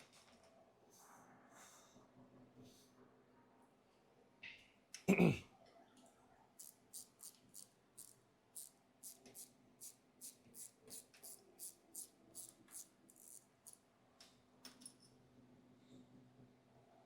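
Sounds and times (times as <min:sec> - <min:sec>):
ratchet wrench clicking: 0:06.6 - 0:13.8.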